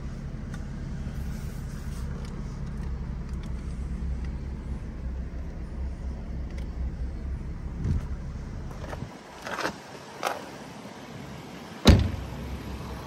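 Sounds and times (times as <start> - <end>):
car engine idling: 0.0 - 9.1.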